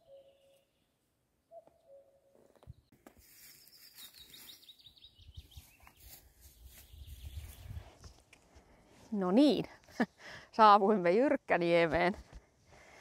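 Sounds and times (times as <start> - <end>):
bird whistle: 0.0 - 0.6
songbird chirping: 0.0 - 8.2
wind rumble on microphone: 6.9 - 8.2.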